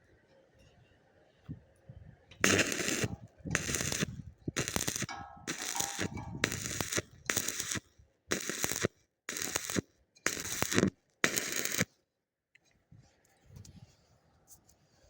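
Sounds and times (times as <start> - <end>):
arc welding crackling: 2.4 - 11.9.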